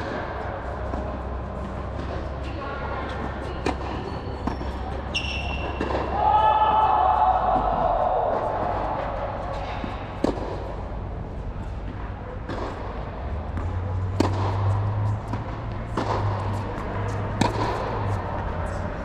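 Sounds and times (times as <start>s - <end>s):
tennis balls struck by racquets: 0.0s - 19.0s.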